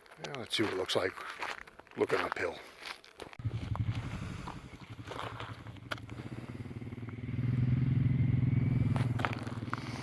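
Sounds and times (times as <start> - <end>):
off-road vehicle engine running: 3.4 - 10.0.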